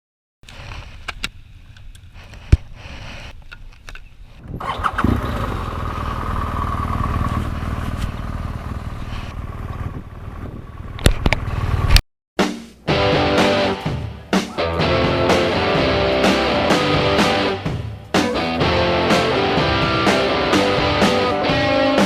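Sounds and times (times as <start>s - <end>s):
motorcycle engine running: 4.7s - 12.0s.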